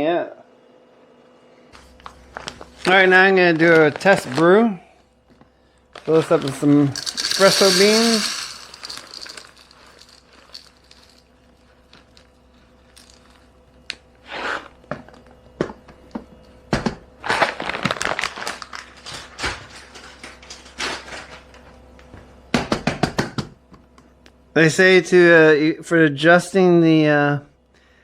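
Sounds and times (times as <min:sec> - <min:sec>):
bag crinkling: 0:05.9 - 0:13.5
coffee beans clattering into hopper: 0:06.1 - 0:13.5.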